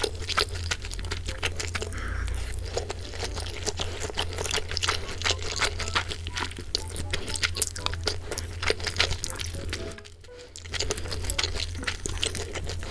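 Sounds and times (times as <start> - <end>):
chewing crispy fried chicken: 0.0 - 12.9.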